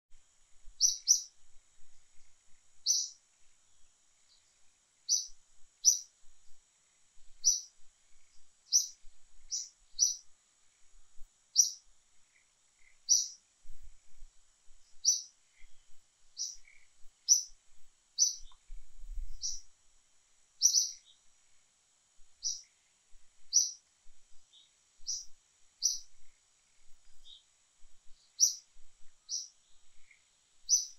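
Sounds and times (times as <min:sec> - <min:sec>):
faint high-pitched hum: 0:00.1 - 0:30.9
bird chirping: 0:00.8 - 0:01.4, 0:02.1 - 0:06.6, 0:07.4 - 0:10.3, 0:11.5 - 0:13.8, 0:14.8 - 0:17.6, 0:18.2 - 0:19.7, 0:20.6 - 0:21.3, 0:22.4 - 0:22.8, 0:23.4 - 0:30.9.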